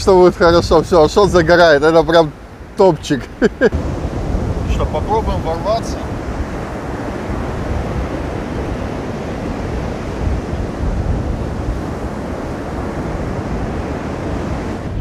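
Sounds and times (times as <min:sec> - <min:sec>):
storm surf breaking: 0:00.0 - 0:15.0
wind rumbling on microphone: 0:00.0 - 0:15.0.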